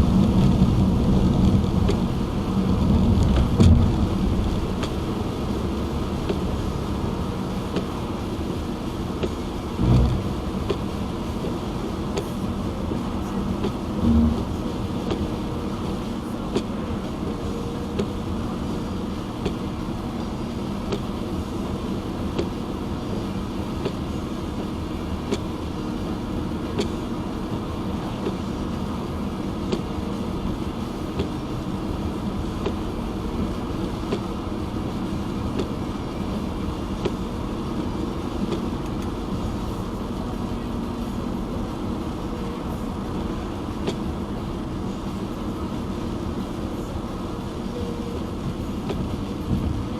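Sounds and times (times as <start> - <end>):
windshield wipers ticking: 9.2 - 12.3
tyre and road rumble: 9.6 - 12.5.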